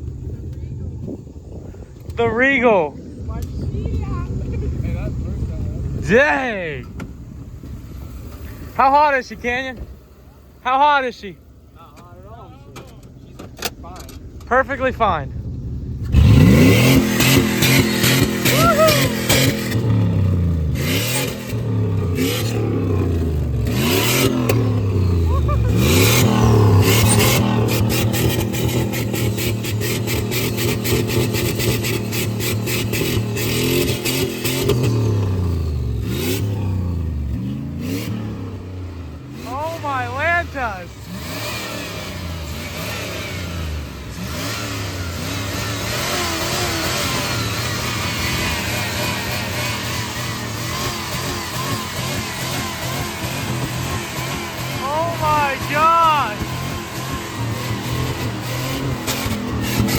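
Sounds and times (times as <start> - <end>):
pickup engine revving: 0.0 - 59.9.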